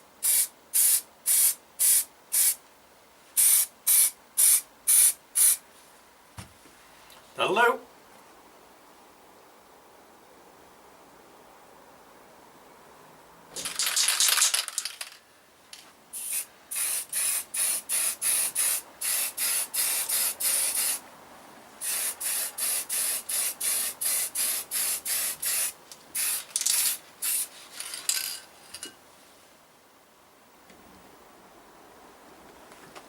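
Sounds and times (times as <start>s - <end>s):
spray paint can spraying: 0.2s - 2.6s, 3.4s - 5.6s, 13.6s - 15.1s, 16.1s - 21.0s, 21.8s - 28.2s.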